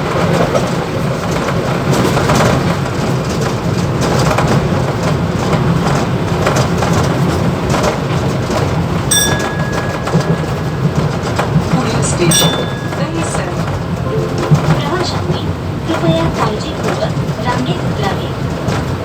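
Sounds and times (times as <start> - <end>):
train wheels rumbling: 0.0 - 19.0
rattling and clicking in cab: 1.3 - 13.9.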